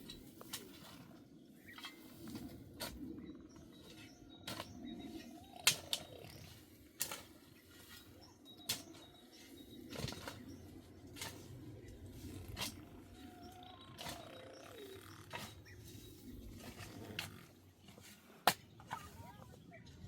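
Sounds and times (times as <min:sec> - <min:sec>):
steady low rumble: 0:09.6 - 0:14.0.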